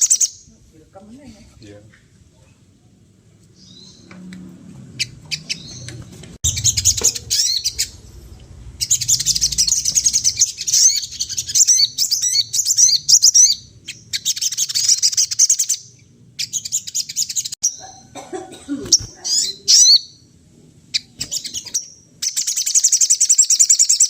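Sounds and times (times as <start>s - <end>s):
sunbird twittering chirps: 0.0s - 0.5s, 5.0s - 18.1s, 19.0s - 20.3s, 20.9s - 24.0s.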